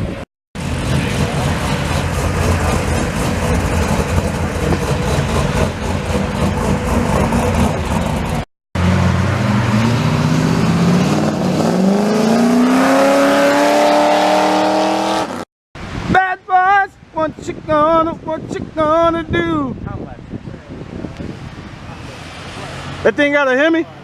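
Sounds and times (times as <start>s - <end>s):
engine accelerating: 0.6s - 15.4s.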